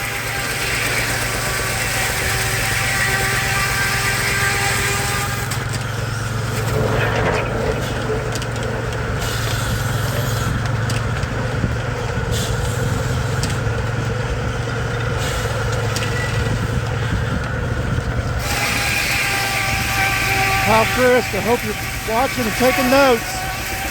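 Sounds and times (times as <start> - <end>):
steam traction engine running: 0.0 - 23.9
low hum: 6.0 - 9.3.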